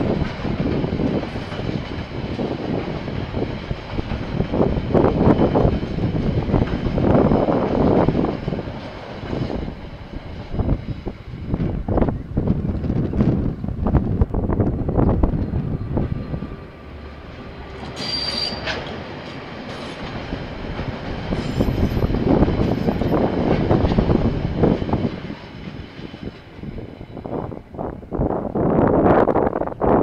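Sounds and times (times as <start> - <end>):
train wheels clickety-clack: 0.0 - 16.4, 17.3 - 27.4
wind noise on microphone: 0.0 - 18.0, 20.0 - 30.0
high-pitched wheel squeal: 17.8 - 18.8.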